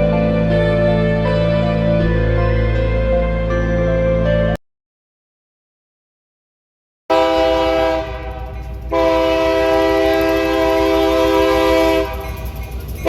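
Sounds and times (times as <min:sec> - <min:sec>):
passing train rumble: 0:00.0 - 0:04.6, 0:07.1 - 0:13.0
locomotive air horn blasts: 0:07.1 - 0:12.6.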